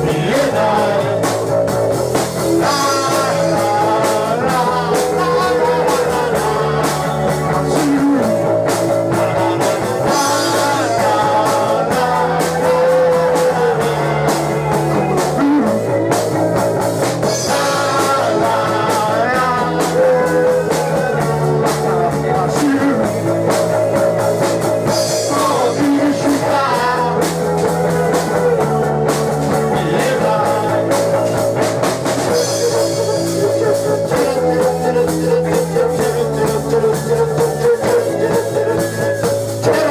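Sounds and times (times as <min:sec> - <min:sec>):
bass line: 0:00.0 - 0:39.9
drum kit: 0:00.0 - 0:39.9
electric guitar: 0:00.0 - 0:39.9.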